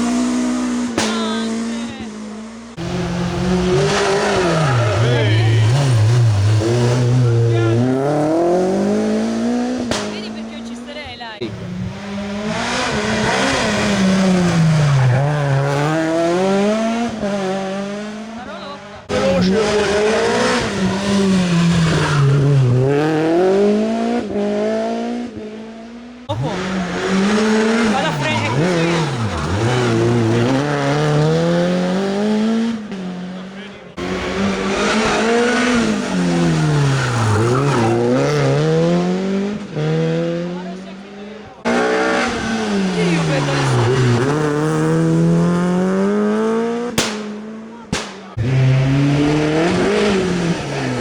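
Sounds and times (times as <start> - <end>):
rally car engine revving: 0.0 - 51.0
tyre and road noise: 0.0 - 51.0.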